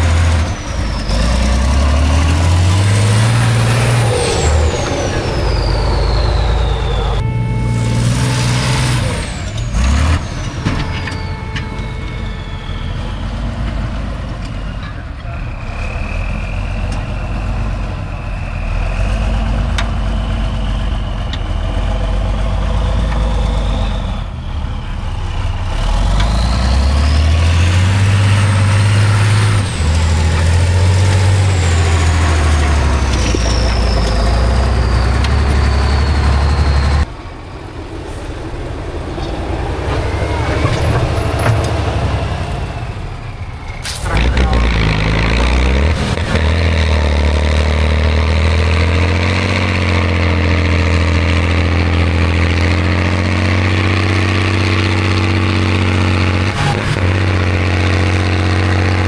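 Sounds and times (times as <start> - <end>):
high whistle: 0.0 - 37.2
truck engine under load: 0.0 - 59.0.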